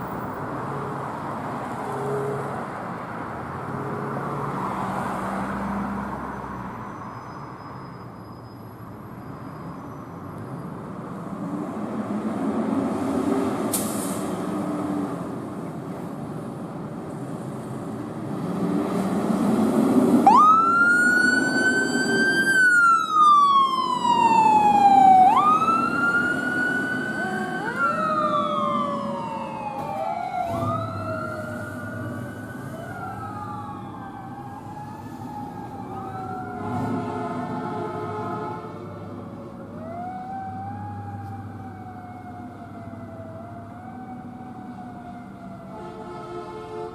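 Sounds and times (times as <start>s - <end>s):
engine and traffic rumble: 0.0s - 46.9s
fire truck siren: 18.6s - 46.9s.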